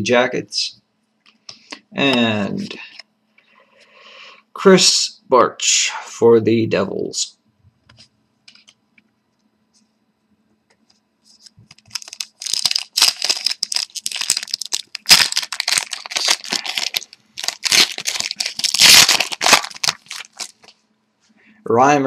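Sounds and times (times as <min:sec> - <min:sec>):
card packaging crinkling: 0:11.4 - 0:20.8.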